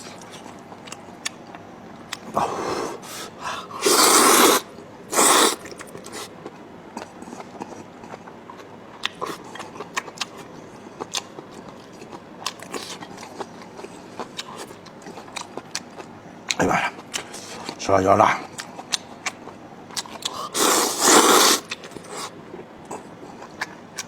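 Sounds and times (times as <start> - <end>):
person chewing with wet clicks: 0.0 - 2.4, 5.4 - 17.8, 18.4 - 24.0
loud breathy bursts: 2.4 - 5.6, 20.4 - 22.3.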